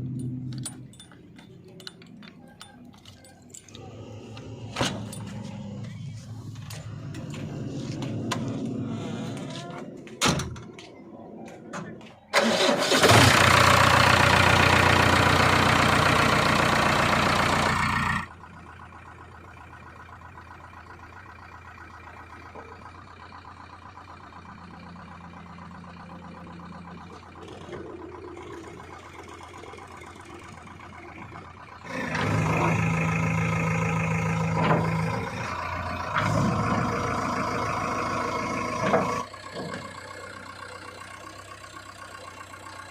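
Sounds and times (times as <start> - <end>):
low hum: 0.0 - 12.3
heavy diesel machinery running: 0.0 - 42.9.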